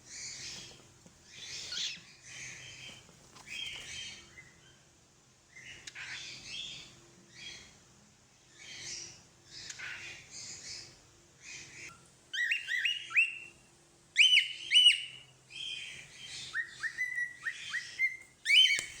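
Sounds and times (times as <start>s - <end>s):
scratchy bird chatter: 0.0s - 4.1s
cockatiel whistling: 12.4s - 13.5s, 14.2s - 15.2s, 16.5s - 19.0s.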